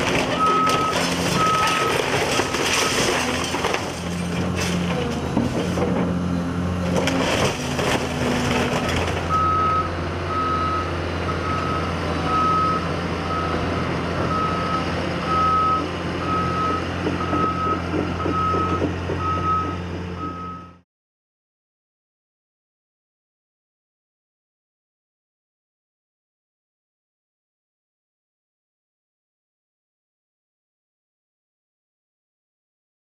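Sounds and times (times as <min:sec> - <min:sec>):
debris crashing and clattering: 0:00.0 - 0:09.5
diesel machinery running: 0:00.0 - 0:20.8.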